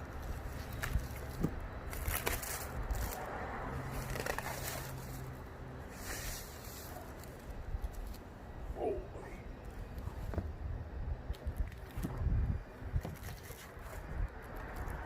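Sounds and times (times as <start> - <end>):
packaging rustling and crinkling: 0.2 - 3.2, 3.9 - 5.4.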